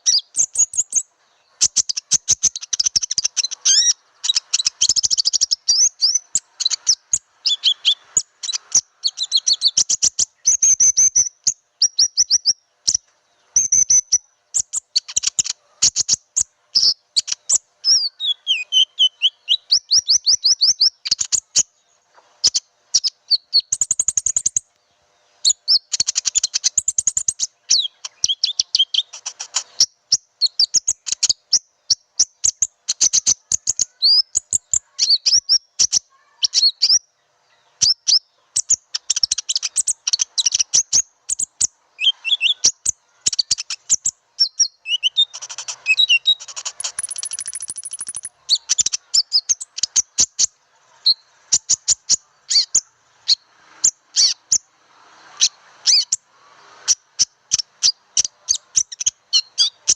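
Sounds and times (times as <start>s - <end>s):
bird lure chirps and trills: 0.0s - 13.0s, 25.4s - 37.0s, 37.8s - 54.6s.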